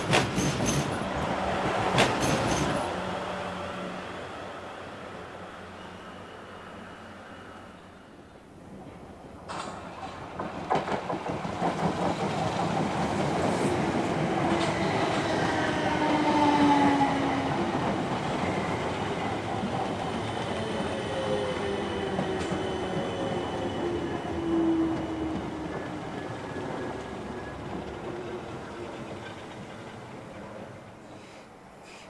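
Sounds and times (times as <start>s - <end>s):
train wheels clicking over rail joints: 0.0s - 3.0s, 8.8s - 16.3s, 17.5s - 24.2s
train rumble: 0.0s - 31.8s.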